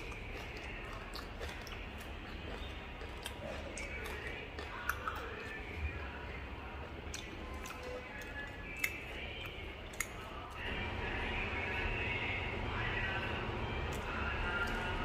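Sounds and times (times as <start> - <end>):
person chewing crunchy fish: 0.0 - 10.6
low hum: 10.5 - 15.0.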